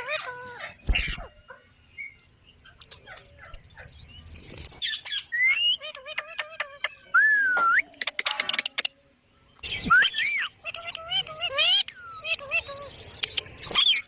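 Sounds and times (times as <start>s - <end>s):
parrots chirping and clicking: 7.6s - 9.0s, 10.6s - 12.5s, 13.1s - 14.0s.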